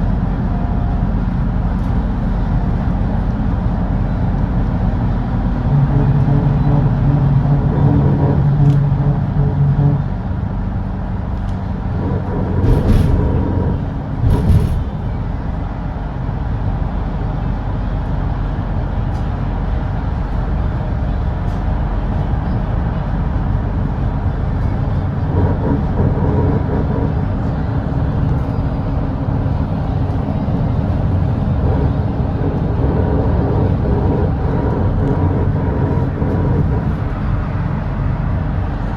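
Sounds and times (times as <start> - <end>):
bus engine drone: 0.0 - 38.9
road noise: 0.0 - 38.9.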